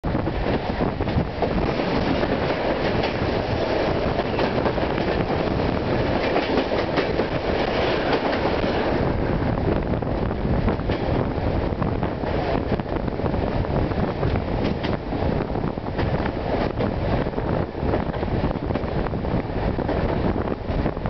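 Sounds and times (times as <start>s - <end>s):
passing train rushing: 0.0s - 21.0s
train wheels clattering: 0.4s - 9.1s, 10.7s - 11.2s, 14.2s - 15.1s.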